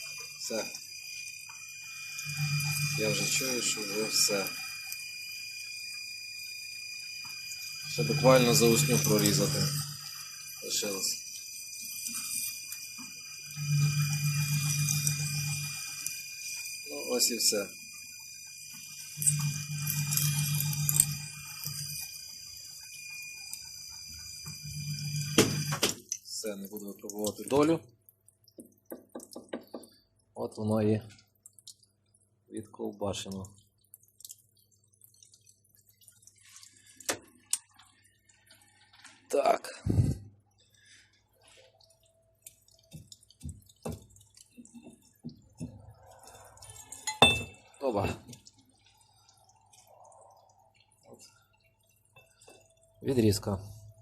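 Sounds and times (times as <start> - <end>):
metal lathe whining: 0.0 - 5.5, 6.3 - 25.8
low hum: 1.6 - 11.2, 13.1 - 17.5, 18.8 - 22.2
metal knocks and clinks: 46.8 - 47.7.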